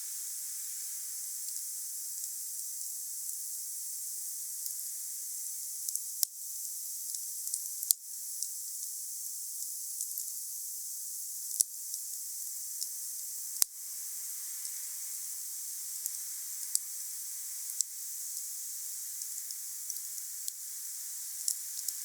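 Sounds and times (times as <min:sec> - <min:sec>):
wood fire hissing and crackling: 0:12.8 - 0:22.0.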